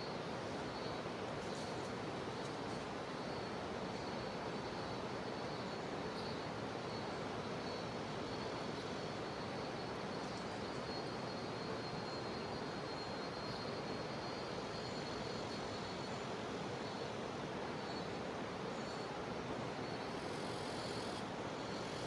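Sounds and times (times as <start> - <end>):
cicadas droning: 0.0 - 22.0.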